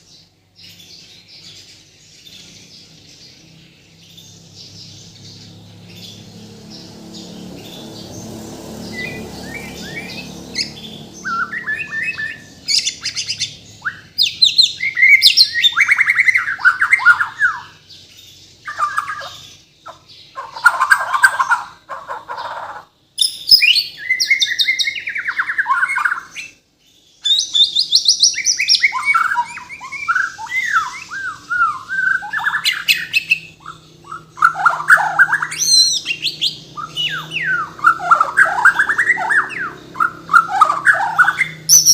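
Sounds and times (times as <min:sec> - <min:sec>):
songbird whistling and trilling: 0:08.9 - 0:21.8, 0:23.2 - 0:26.6, 0:27.2 - 0:41.9.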